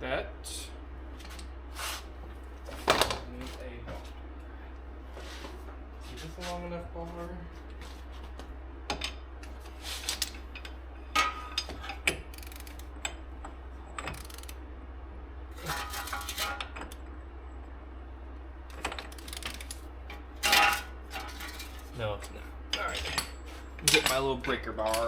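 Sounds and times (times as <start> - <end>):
metal tools clanking: 10.2 - 12.9, 15.6 - 17.0, 18.7 - 25.0.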